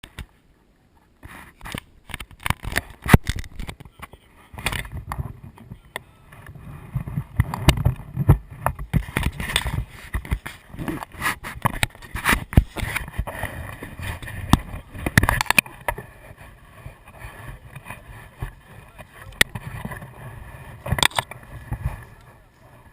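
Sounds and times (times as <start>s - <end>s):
sharp knocks and thumps: 6.9s - 16.1s.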